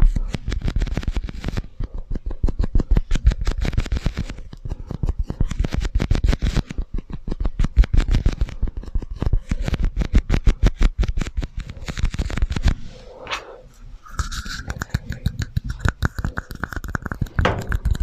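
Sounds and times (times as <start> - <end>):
tapping and scratching on cups: 0.0 - 12.8, 14.0 - 18.0.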